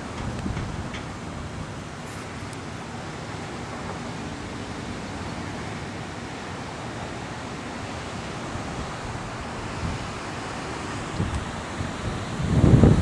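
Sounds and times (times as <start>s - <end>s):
wind buffeting microphone: 0.0s - 6.1s, 7.4s - 13.0s
wind rushing: 8.2s - 13.0s.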